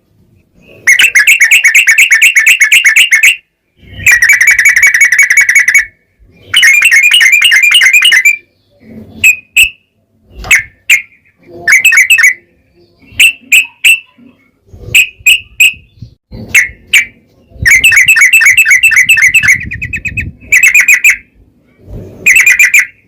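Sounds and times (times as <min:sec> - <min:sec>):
bird fast rattling trill: 0:00.8 - 0:05.9, 0:06.5 - 0:08.4, 0:17.6 - 0:21.2, 0:22.2 - 0:23.0.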